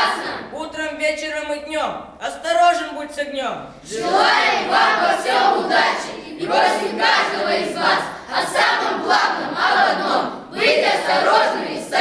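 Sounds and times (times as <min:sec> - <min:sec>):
young voices chanting in unison: 0:00.0 - 0:00.6, 0:03.8 - 0:12.0.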